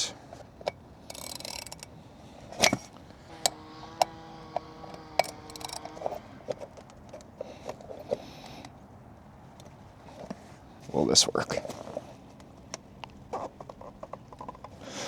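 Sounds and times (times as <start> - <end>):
tool clicks: 0.6 - 1.9, 2.6 - 6.0
metal hand tools clinking: 0.6 - 4.1, 4.9 - 6.1
steady ringing tone: 2.6 - 5.9.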